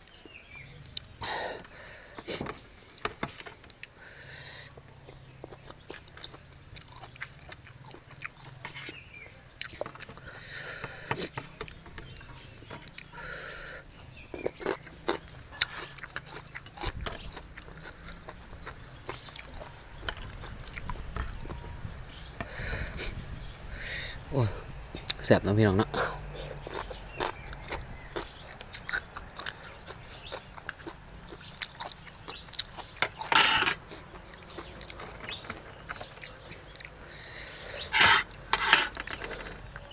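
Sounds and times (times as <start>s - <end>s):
person chewing and crunching: 4.6s - 10.4s, 14.0s - 19.8s, 26.4s - 38.5s
clicks and scrapes: 33.0s - 34.0s, 37.8s - 39.7s.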